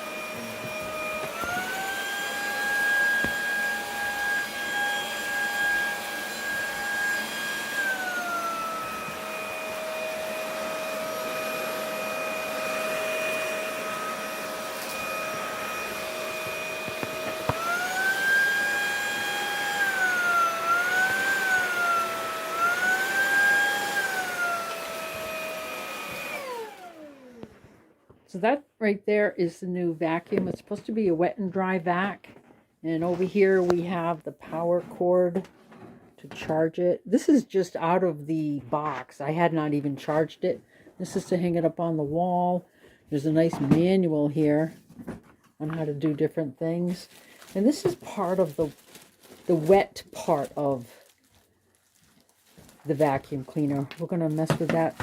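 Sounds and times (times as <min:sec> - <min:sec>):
vacuum cleaner motor whining: 0:00.0 - 0:28.0, 0:52.8 - 0:55.0.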